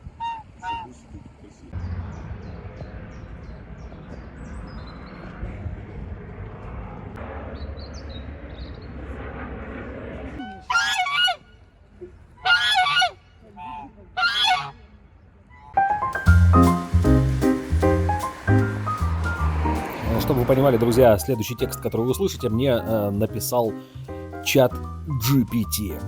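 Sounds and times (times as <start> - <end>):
low rumble: 1.8 - 10.4, 15.8 - 22.0
geese honking: 10.6 - 11.4, 12.4 - 14.8.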